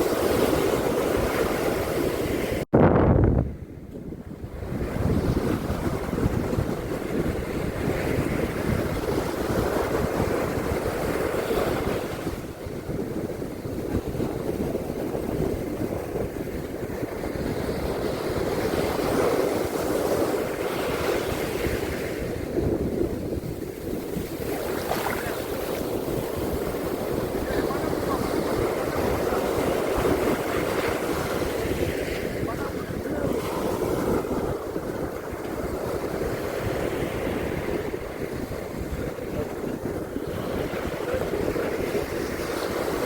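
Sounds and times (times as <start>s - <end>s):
waves breaking on beach: 0.0s - 2.7s, 4.2s - 43.0s.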